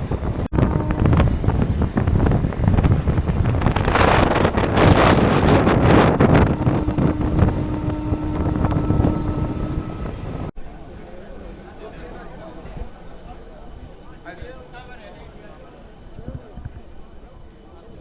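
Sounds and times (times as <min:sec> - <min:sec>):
wind on microphone: 0:00.0 - 0:10.5
electric train running on track: 0:00.0 - 0:18.0.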